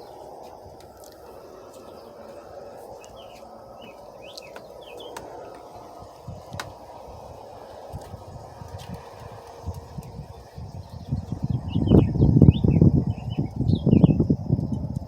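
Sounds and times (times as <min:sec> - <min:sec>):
steady background hum: 0:00.0 - 0:14.6.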